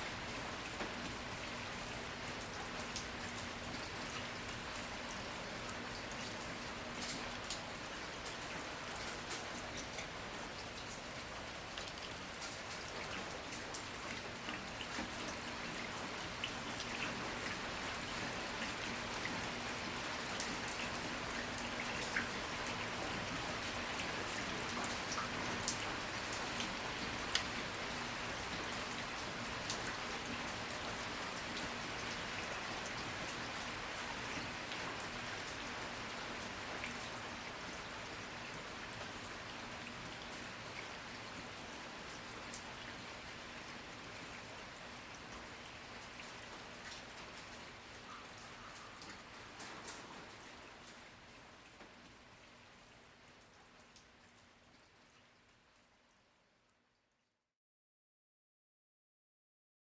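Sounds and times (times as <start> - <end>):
steady rain hiss: 0.0 - 56.9
raindrops ticking: 0.2 - 19.6, 24.0 - 27.6, 47.6 - 51.0.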